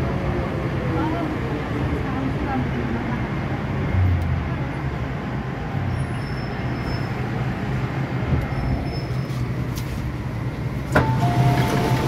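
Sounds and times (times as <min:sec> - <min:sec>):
train rumbling with low hum: 0:00.0 - 0:12.0
faint high squeals: 0:05.9 - 0:07.2, 0:08.5 - 0:09.4.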